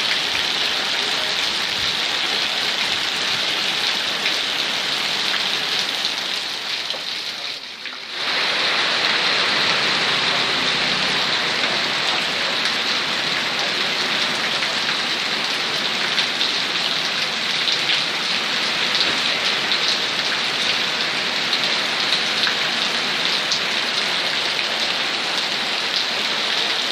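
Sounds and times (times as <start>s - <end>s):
heavy rain falling: 0.0s - 26.9s.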